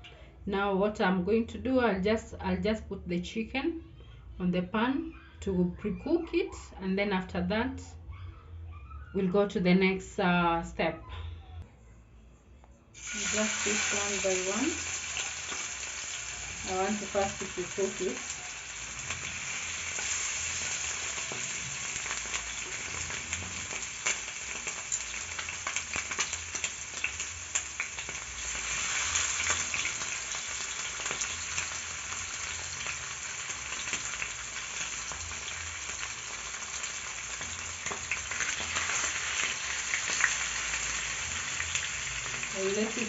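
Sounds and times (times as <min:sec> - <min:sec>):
chicken frying in hot oil: 0:13.0 - 0:43.0.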